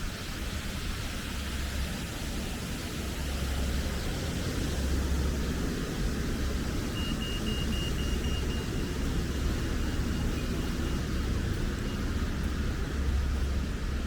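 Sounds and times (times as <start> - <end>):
traffic rumble: 2.8 - 14.0
short high-pitched beeps: 7.0 - 11.0.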